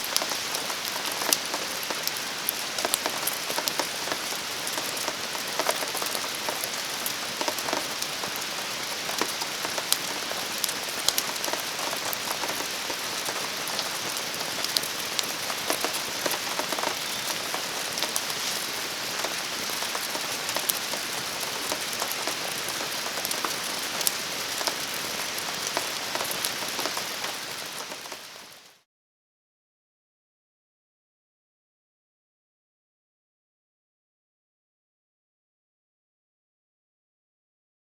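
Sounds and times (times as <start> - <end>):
steady rain falling: 0.0 - 28.8.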